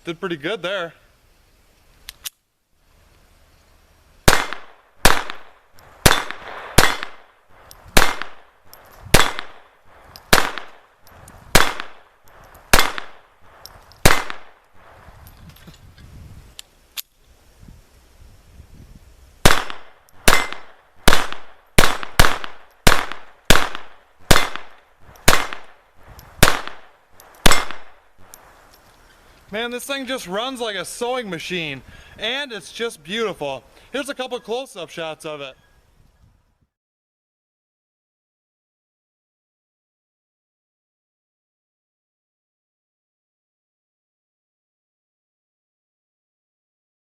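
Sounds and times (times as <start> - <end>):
pistol shots: 4.2 - 7.4, 8.0 - 10.9, 11.5 - 13.4, 14.0 - 14.6, 19.4 - 25.8, 26.4 - 28.3.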